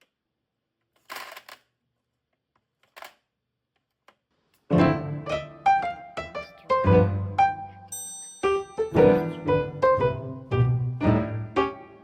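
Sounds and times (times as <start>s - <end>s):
solo piano music: 4.7s - 12.0s.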